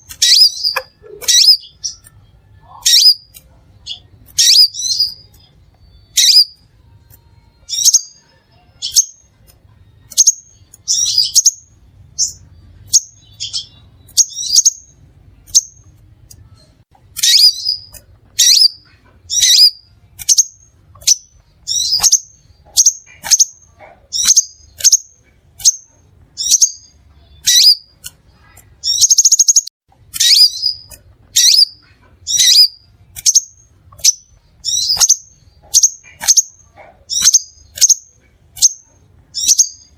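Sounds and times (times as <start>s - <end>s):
bird calling sharp high chips: 0.0s - 2.1s.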